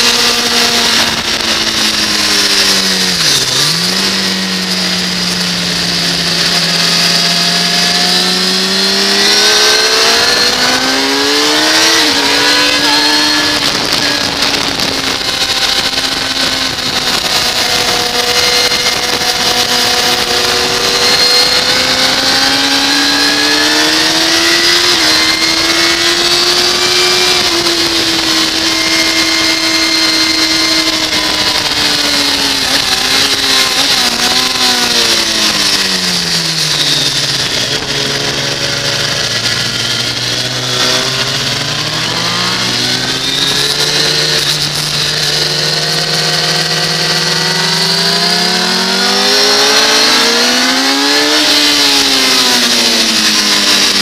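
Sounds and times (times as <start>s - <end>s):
motorcycle engine revving: 0.0s - 54.0s
wind rush over microphone: 8.2s - 48.3s.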